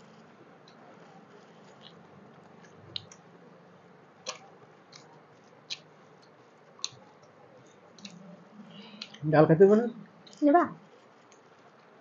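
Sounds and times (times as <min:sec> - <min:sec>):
chewing: 0:00.6 - 0:03.3, 0:04.2 - 0:09.2.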